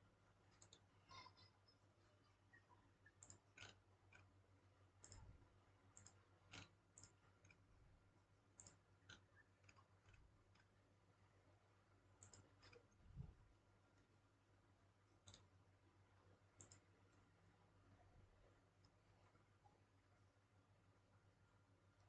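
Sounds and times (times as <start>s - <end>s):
low steady hum: 0.0s - 22.0s
mouse and keyboard clicks: 0.5s - 0.9s, 3.1s - 4.3s, 5.0s - 5.3s, 5.9s - 7.7s, 8.5s - 10.7s, 12.2s - 13.0s, 15.2s - 15.5s, 16.6s - 16.9s.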